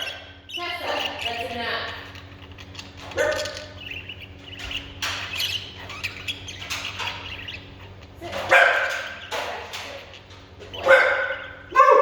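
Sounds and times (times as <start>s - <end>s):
dog barking: 3.2s - 3.7s, 8.4s - 9.2s, 10.7s - 12.0s.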